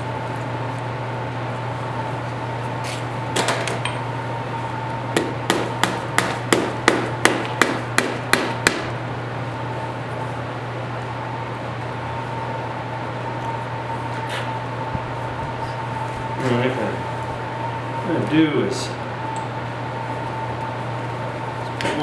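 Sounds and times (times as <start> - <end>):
steady hum: 0.0 - 22.0
hammer strikes: 5.2 - 8.9.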